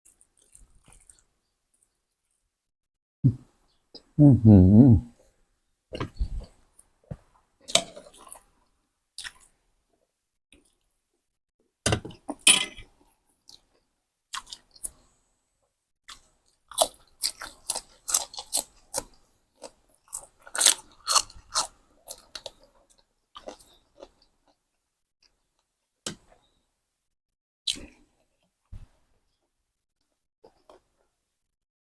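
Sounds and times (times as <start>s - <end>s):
chewing crisp food: 0.1s - 2.4s, 9.2s - 9.6s, 13.4s - 15.0s, 16.1s - 24.6s.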